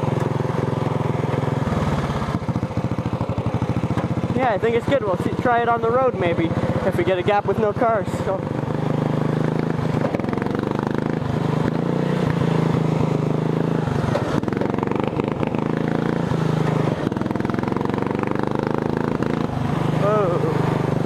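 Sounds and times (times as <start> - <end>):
lawn tractor engine revving: 0.0 - 21.0
chassis clattering over bumps: 9.4 - 20.0.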